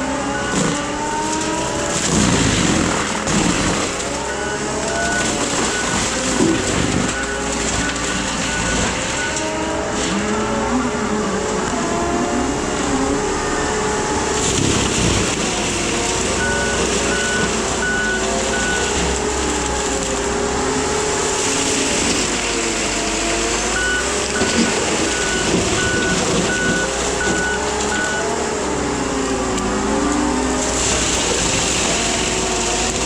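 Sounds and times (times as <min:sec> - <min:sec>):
mulching machine engine running: 0:00.0 - 0:33.0
reversing alarm beeps: 0:00.2 - 0:00.9, 0:04.2 - 0:09.6, 0:16.4 - 0:19.0, 0:23.6 - 0:28.4.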